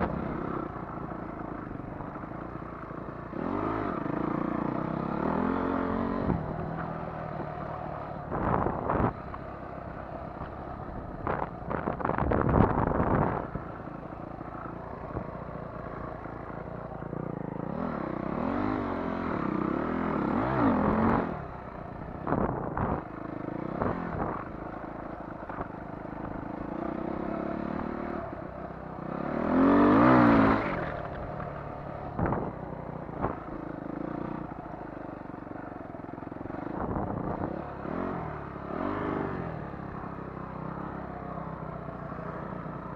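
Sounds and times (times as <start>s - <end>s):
dirt bike engine revving: 0.0s - 9.2s, 11.3s - 21.5s, 29.0s - 34.5s, 36.5s - 41.2s.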